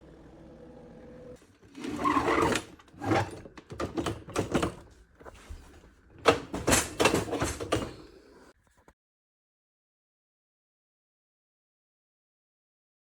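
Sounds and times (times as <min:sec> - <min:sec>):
kitchen cabinet doors banging: 0:05.6 - 0:08.1.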